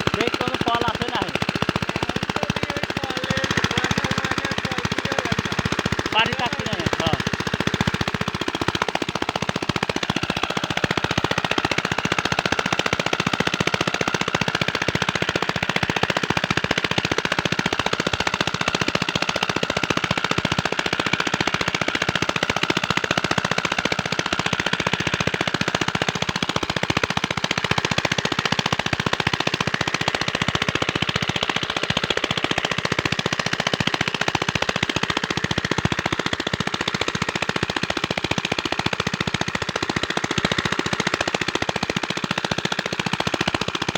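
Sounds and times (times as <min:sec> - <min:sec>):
diesel engine knocking: 0:00.0 - 0:43.9.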